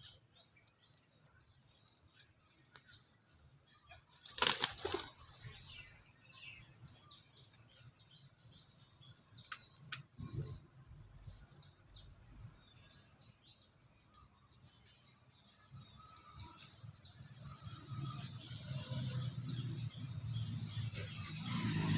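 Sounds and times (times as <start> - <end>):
bird wings flapping: 4.1 - 5.6.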